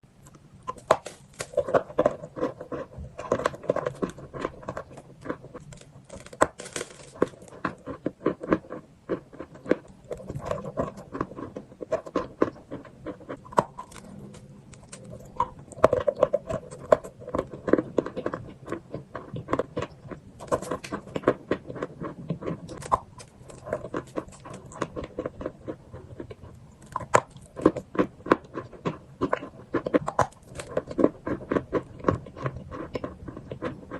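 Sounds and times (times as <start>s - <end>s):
chalk crunching and crackling: 0.8s - 15.1s.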